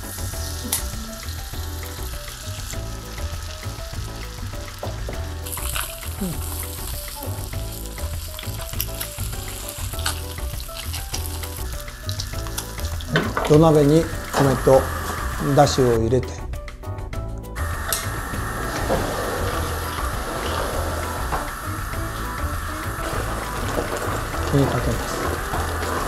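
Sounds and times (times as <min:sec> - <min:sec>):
fish sizzling in frying pan: 0:00.0 - 0:16.0, 0:17.6 - 0:26.0
background music: 0:00.0 - 0:26.0.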